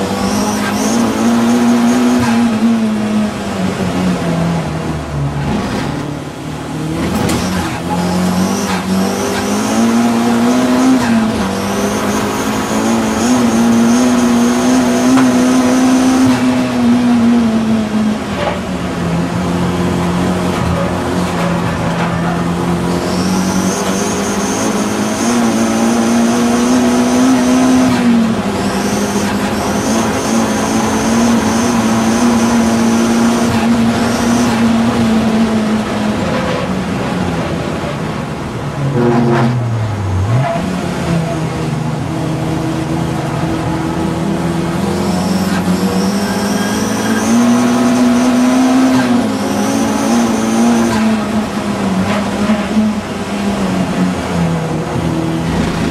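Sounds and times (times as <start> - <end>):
race car engine at high revs: 0.0 - 55.9
high whine: 55.2 - 55.9.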